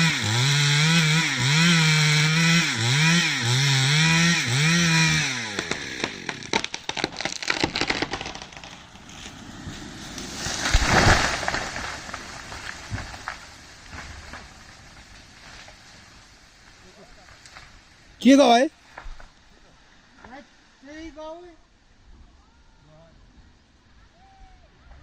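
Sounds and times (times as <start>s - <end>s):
chainsaw cutting wood: 0.0s - 15.9s
tree crashing down: 0.0s - 19.4s
wood snapping and cracking: 4.6s - 17.9s.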